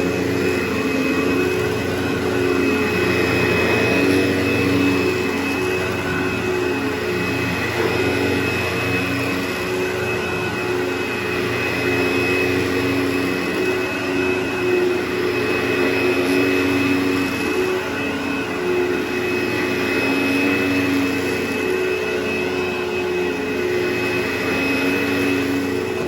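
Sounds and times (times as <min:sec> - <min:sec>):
low wavering hum: 0:00.0 - 0:12.2
motor drone with high whine: 0:00.0 - 0:26.0.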